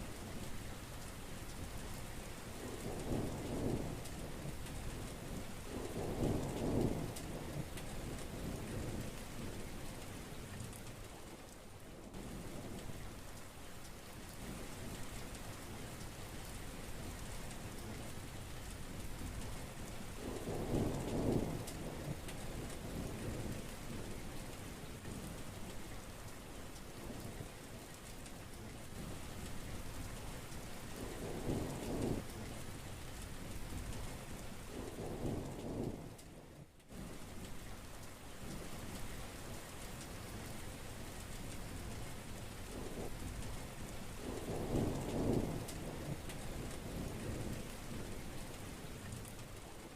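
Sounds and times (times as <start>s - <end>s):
heavy rain falling: 0.0s - 49.9s
thunder rumbling: 5.3s - 9.6s, 20.2s - 24.3s, 31.0s - 32.3s, 42.6s - 43.5s, 44.2s - 49.9s.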